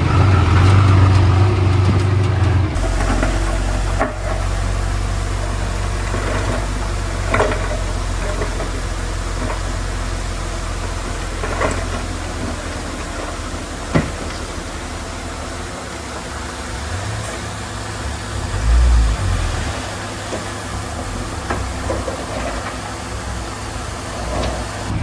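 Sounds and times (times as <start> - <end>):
metallic clanks: 0.0 - 9.8
diesel engine running: 0.0 - 25.0.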